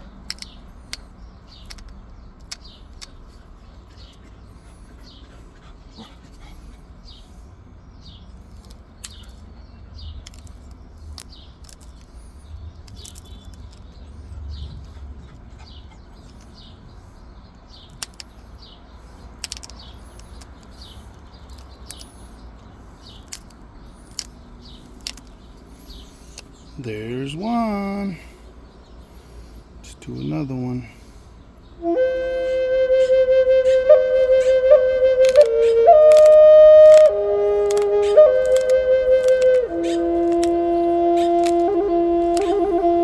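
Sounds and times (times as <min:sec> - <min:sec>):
birds chirping: 0:00.0 - 0:43.0
stone flakes snapping with sharp clicks: 0:00.3 - 0:03.2, 0:08.5 - 0:09.4, 0:10.3 - 0:12.2, 0:12.9 - 0:13.8, 0:17.9 - 0:18.3, 0:19.4 - 0:20.8, 0:23.2 - 0:25.4, 0:35.2 - 0:35.5, 0:36.1 - 0:40.6, 0:41.2 - 0:42.6.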